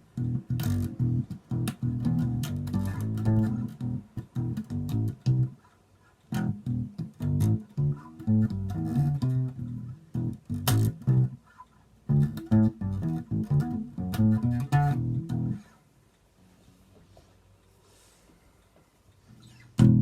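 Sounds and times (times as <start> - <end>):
electric bass plucked notes: 0.0 - 5.6, 6.3 - 11.4, 12.1 - 15.7, 19.8 - 20.0
finger clicks on strings: 0.2 - 5.6, 6.2 - 11.4, 12.1 - 15.7.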